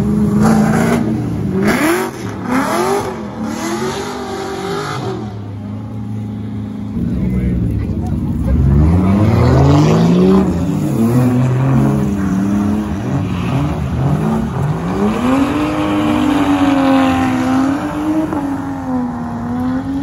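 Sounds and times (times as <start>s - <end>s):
car engine revving hard: 0.0s - 5.6s, 8.3s - 20.0s.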